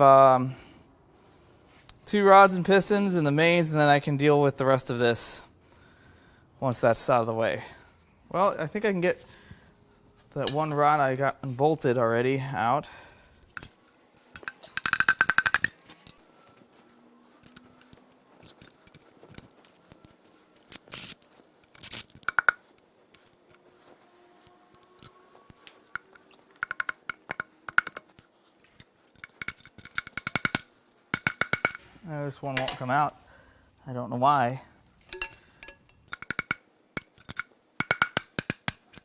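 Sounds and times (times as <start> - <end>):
rapid metallic clicking: 13.6 - 15.8, 36.1 - 39.0
metal clinking on metal: 13.6 - 16.2, 25.0 - 31.8, 35.1 - 39.0.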